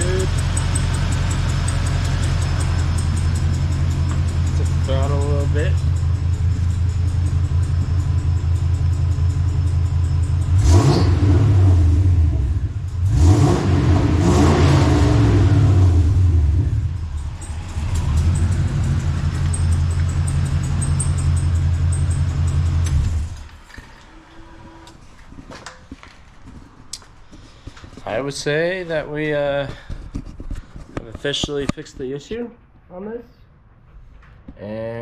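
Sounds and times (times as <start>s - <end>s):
engine idling and revving: 0.0s - 23.6s.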